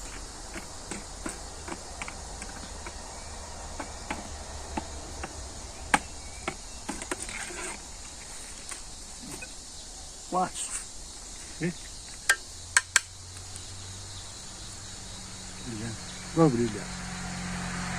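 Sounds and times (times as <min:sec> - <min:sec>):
hand tool digging in soil: 0:00.0 - 0:09.5
insects chirring: 0:00.0 - 0:17.9.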